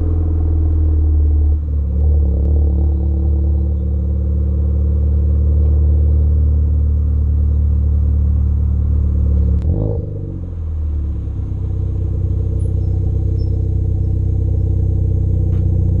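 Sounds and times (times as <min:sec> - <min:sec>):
car engine drone: 0:00.0 - 0:16.0.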